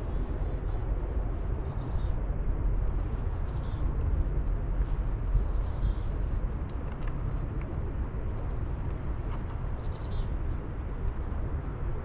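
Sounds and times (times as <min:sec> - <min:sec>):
small birds chirping: 0:05.0 - 0:08.0, 0:09.6 - 0:10.3.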